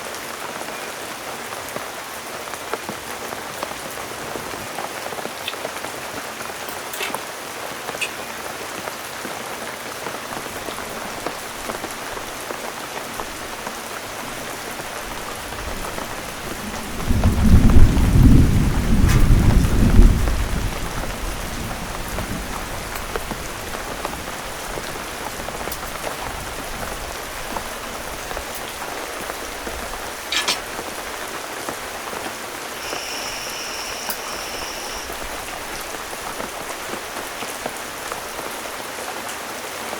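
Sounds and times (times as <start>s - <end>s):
heavy rain falling: 0.0s - 39.9s
thunder rumbling: 13.1s - 32.0s.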